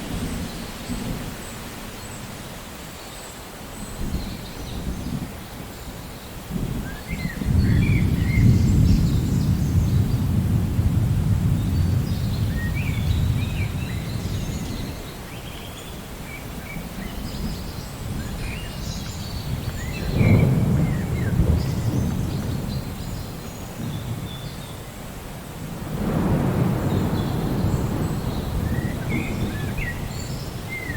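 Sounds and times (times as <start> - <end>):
rain hiss: 0.0 - 30.9
thunder rumbling: 6.5 - 14.9, 17.3 - 24.3, 25.7 - 30.9
birds chirping: 26.4 - 30.9.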